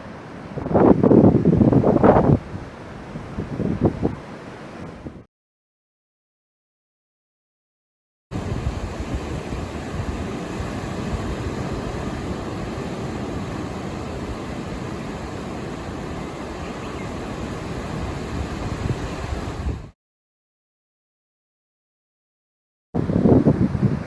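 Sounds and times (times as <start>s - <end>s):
ocean surf washing: 0.0s - 5.3s, 8.3s - 20.0s
wind buffeting microphone: 0.6s - 4.2s, 8.3s - 20.0s, 23.0s - 24.0s.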